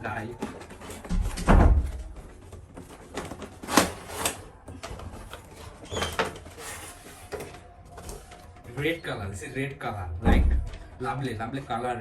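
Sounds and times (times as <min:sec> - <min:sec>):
packaging scraping and rustling: 0:00.0 - 0:01.3, 0:02.0 - 0:09.0
heavy thump: 0:10.2 - 0:10.8.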